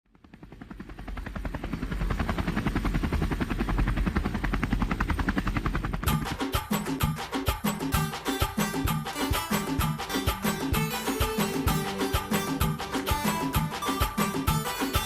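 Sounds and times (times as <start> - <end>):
helicopter rotor chopping: 0.1 - 15.0
music: 6.0 - 15.0.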